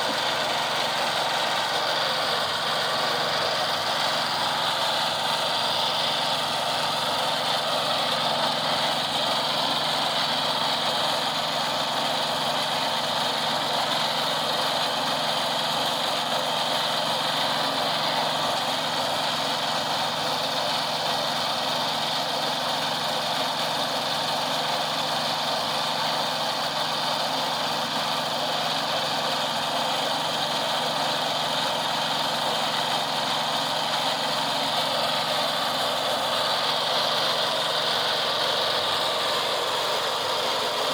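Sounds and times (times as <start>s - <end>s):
construction machinery engine running: 0.0s - 40.9s.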